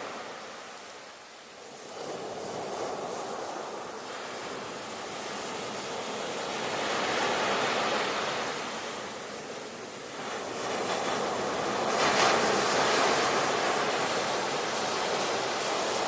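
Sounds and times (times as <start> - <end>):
ocean waves washing onto shore: 0.0 - 16.0.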